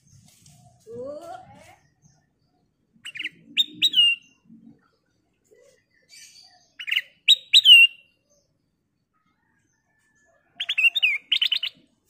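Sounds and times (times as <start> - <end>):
bulbul singing: 1.0 - 8.6, 10.6 - 12.0.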